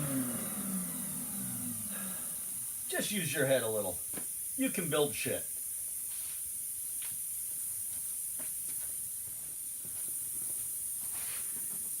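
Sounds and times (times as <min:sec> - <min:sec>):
high-pitched hiss: 0:00.0 - 0:12.0.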